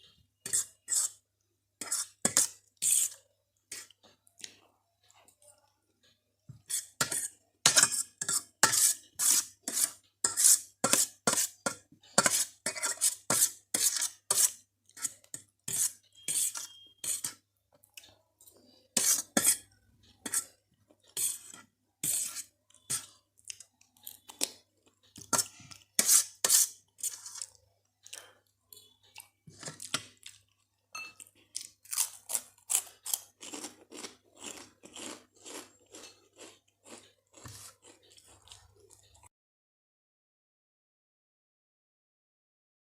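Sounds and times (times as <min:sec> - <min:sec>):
crunchy eating close up: 0:31.3 - 0:39.3.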